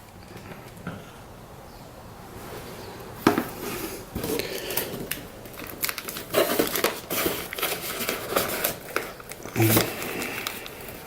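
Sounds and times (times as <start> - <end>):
packaging rustling: 3.2 - 11.0.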